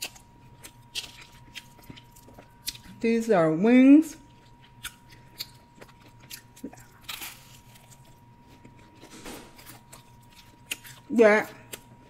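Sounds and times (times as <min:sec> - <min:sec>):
person chewing: 0:00.0 - 0:03.0, 0:04.2 - 0:12.0
crisp crunches: 0:04.4 - 0:11.1.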